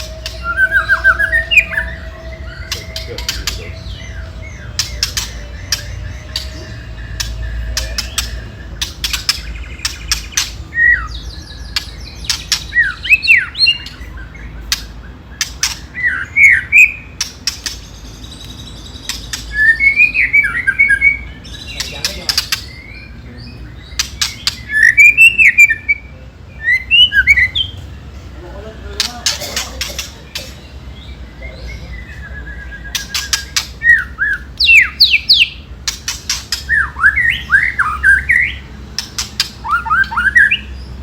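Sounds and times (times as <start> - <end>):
bird whistled notes: 0.0 - 11.8, 31.7 - 35.6, 39.6 - 40.8
bird sharp clicking rattle: 17.2 - 17.8, 29.0 - 30.6, 35.8 - 36.8, 38.9 - 39.6.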